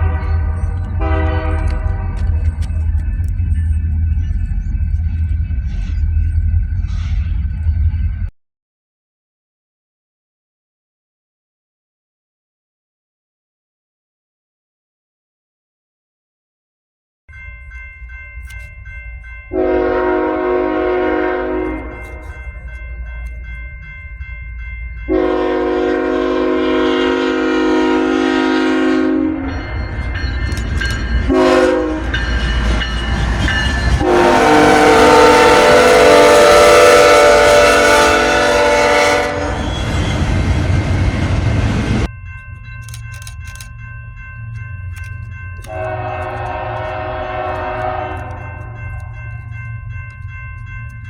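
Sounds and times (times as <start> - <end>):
locomotive air horn blasts: 0.0 - 2.5, 19.5 - 22.4, 25.1 - 29.6, 31.3 - 32.2, 34.0 - 40.4, 45.6 - 48.8
train passing rush: 0.0 - 8.3, 17.3 - 51.0.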